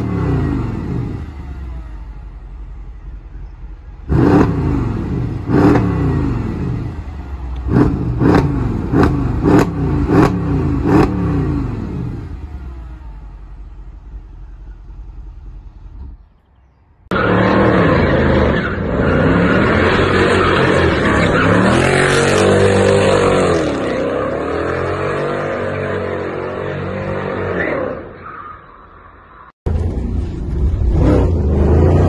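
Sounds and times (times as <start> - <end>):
car engine accelerating: 0.0 - 16.5.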